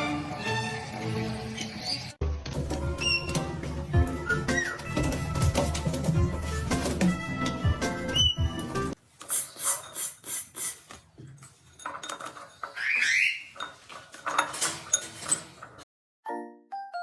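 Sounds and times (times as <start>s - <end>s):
glockenspiel tune: 16.2s - 17.0s.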